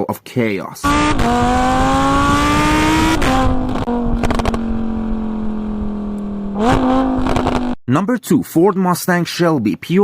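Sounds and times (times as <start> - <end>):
sports car exhaust revving: 0.8 - 7.8.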